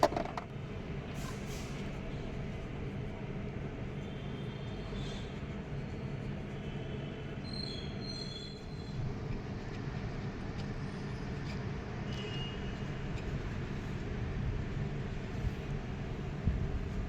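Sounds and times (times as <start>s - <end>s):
faint high squeaks: 11.4s - 13.4s.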